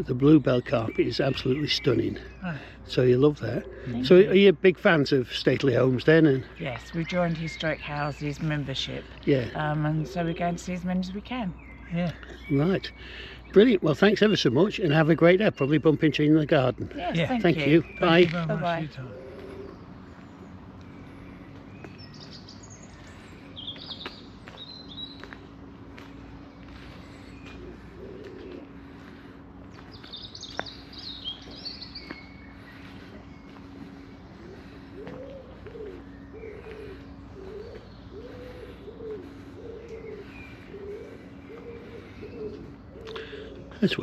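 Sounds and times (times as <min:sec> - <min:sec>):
songbirds chirping: 0:00.0 - 0:44.0
pigeon cooing: 0:03.5 - 0:04.4, 0:17.2 - 0:19.8, 0:27.4 - 0:29.3, 0:32.6 - 0:44.0.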